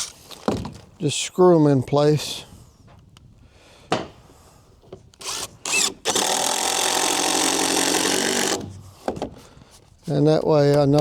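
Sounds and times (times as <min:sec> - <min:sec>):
power drill driving screw: 0:05.2 - 0:08.8.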